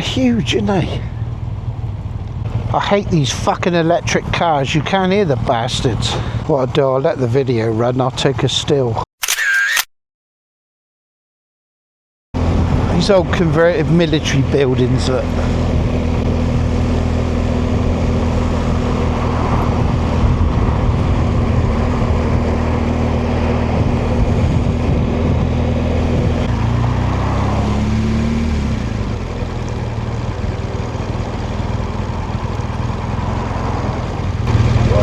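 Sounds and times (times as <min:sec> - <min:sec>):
motorcycle engine running: 0:00.0 - 0:07.8, 0:12.4 - 0:35.0
wind noise: 0:15.6 - 0:29.2.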